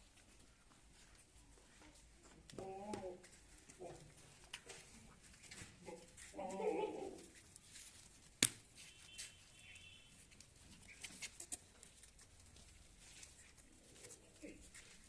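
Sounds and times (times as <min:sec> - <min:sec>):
faint high chirp: 0:08.9 - 0:10.2.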